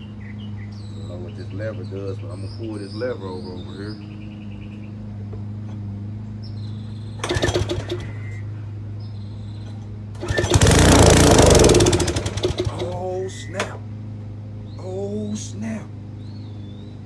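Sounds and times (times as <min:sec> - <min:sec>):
engine sputtering: 0:06.9 - 0:08.7, 0:09.6 - 0:13.8
small gasoline engine cranking: 0:07.2 - 0:08.4, 0:09.7 - 0:13.8.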